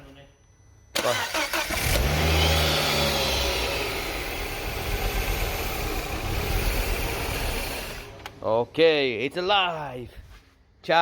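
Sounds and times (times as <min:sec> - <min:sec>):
car engine idling: 0:01.2 - 0:08.4.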